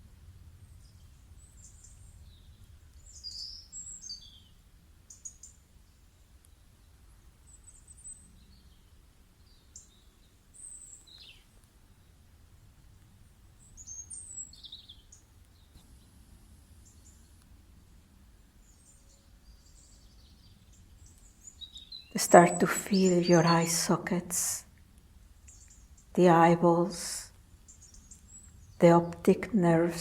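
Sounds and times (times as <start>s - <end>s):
faint bird chirps and whistles: 0.7s - 5.6s.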